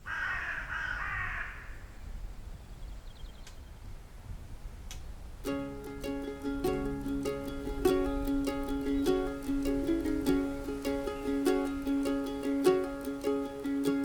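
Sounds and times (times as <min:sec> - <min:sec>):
faint clicks: 0:03.4 - 0:03.6, 0:04.9 - 0:05.1
plucked-string music: 0:05.4 - 0:14.0.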